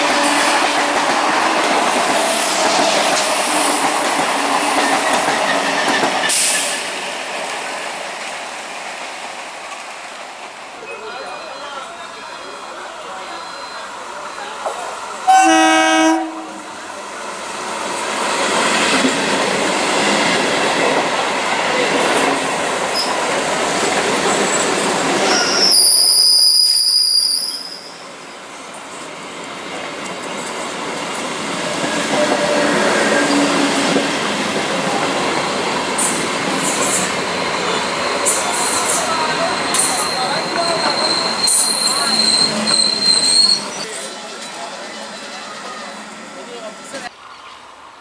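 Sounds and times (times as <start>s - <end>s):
train rumbling and rattling past: 0.0s - 27.3s, 27.9s - 48.0s
train horn blast: 15.3s - 16.6s
high-pitched squeal: 36.0s - 46.4s.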